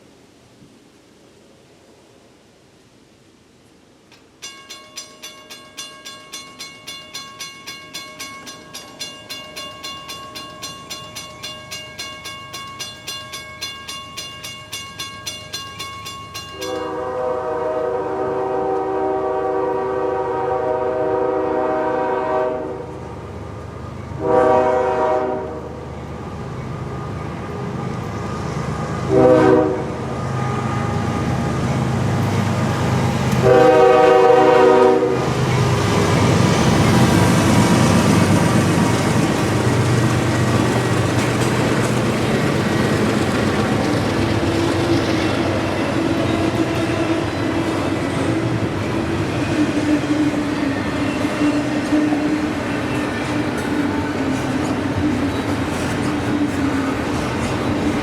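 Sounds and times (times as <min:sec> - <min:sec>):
low rumble of train: 0:00.0 - 0:58.0
crossing warning bell ringing: 0:04.3 - 0:17.8, 0:35.4 - 0:58.0
locomotive air horn blasts: 0:16.6 - 0:23.0, 0:24.2 - 0:25.8, 0:29.1 - 0:31.4, 0:33.4 - 0:35.4.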